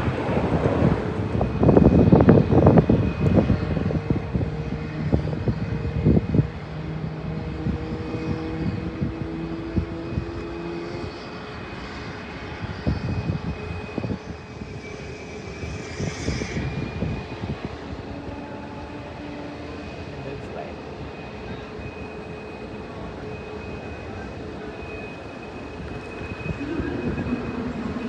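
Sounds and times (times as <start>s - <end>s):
aircraft engines whining: 0.0s - 28.0s.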